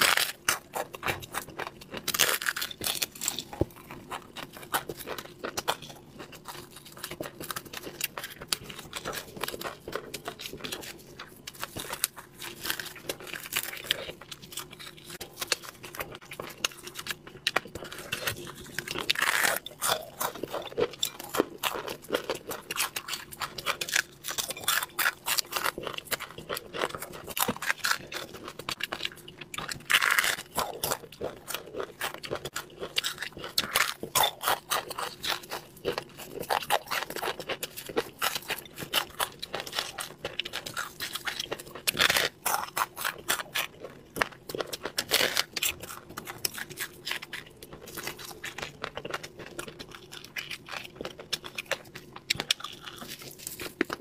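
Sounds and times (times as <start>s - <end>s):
crunching and chewing fish: 0.0s - 54.0s.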